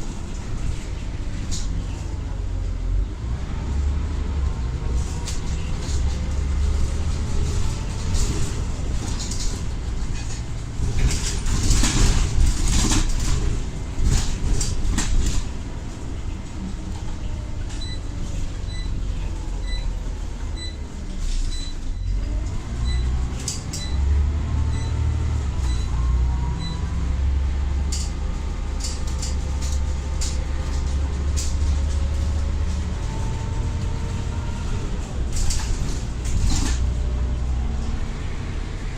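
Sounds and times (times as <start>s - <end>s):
low engine rumble: 0.0s - 38.9s.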